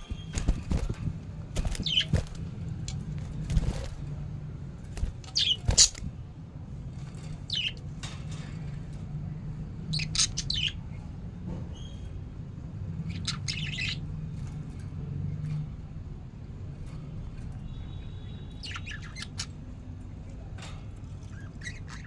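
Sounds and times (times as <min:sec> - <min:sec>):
steady low hum: 0:00.0 - 0:17.5
budgerigars chirping and squawking: 0:01.6 - 0:02.4, 0:05.0 - 0:06.1, 0:07.4 - 0:07.8, 0:09.8 - 0:10.9, 0:13.0 - 0:14.1, 0:18.4 - 0:19.7, 0:21.2 - 0:22.0.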